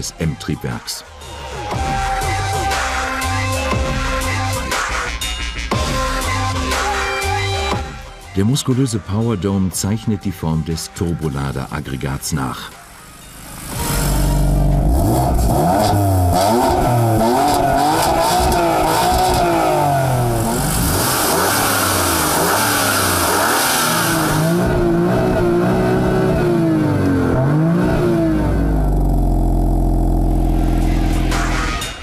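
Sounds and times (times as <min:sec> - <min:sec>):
car engine revving: 0:13.0 - 0:32.0.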